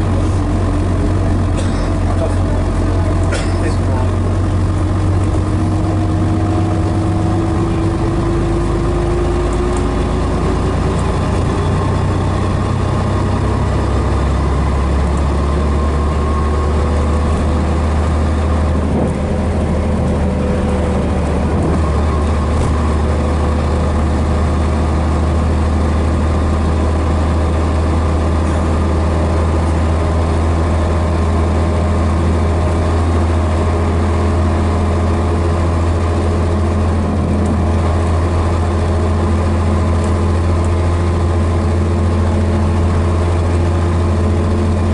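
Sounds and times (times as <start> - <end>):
bus diesel engine humming: 0.0 - 44.9.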